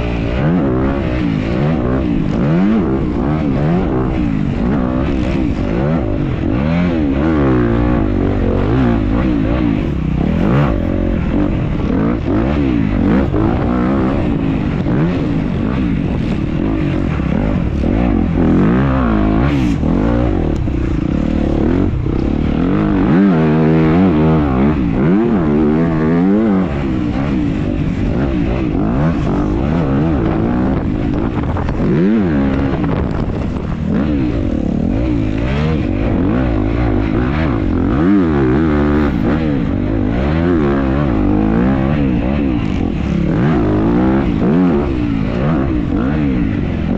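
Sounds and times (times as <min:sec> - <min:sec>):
dirt bike engine revving: 0:00.0 - 0:46.9.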